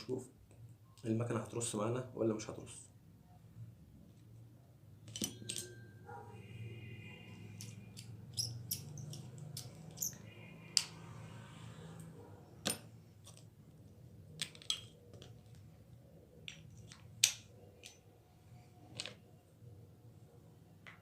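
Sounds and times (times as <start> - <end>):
clicks of small reel parts: 7.5 - 11.2, 14.3 - 15.7, 16.4 - 18.1.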